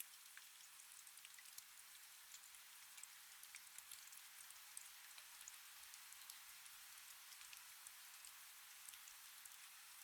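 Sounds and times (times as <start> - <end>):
faint steady rain: 0.0 - 10.0.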